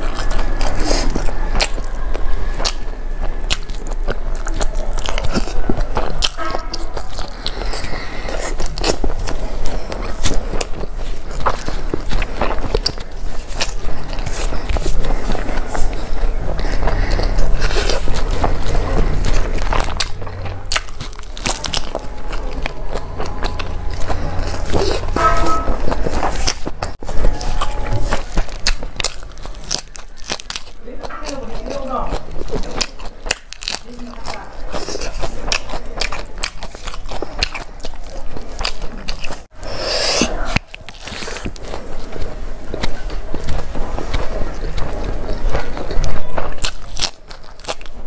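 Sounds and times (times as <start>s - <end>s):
steady low hum: 0.0s - 33.4s
crunchy chewing: 0.0s - 48.0s.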